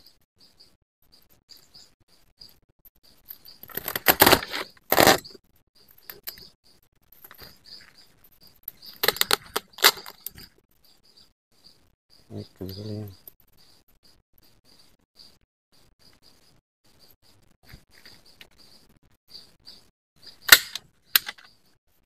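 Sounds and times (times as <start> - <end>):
crackling clattering handling noise: 3.3 - 5.4, 7.1 - 8.0, 8.7 - 10.6, 20.5 - 21.6.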